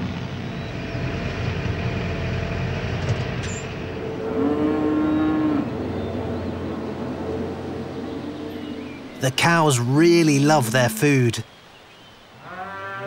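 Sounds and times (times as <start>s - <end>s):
cow mooing: 3.8s - 9.3s, 12.4s - 13.0s.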